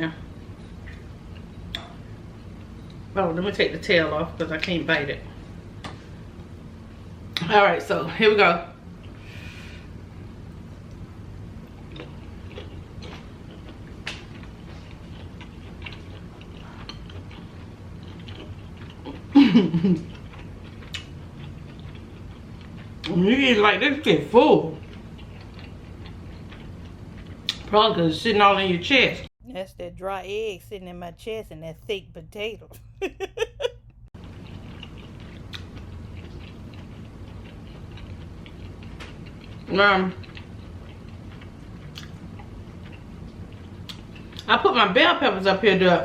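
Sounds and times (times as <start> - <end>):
steady low hum: 0.0 - 46.0
close chewing with wet clicks: 11.8 - 19.4, 20.0 - 23.2, 24.8 - 27.7, 34.2 - 44.5.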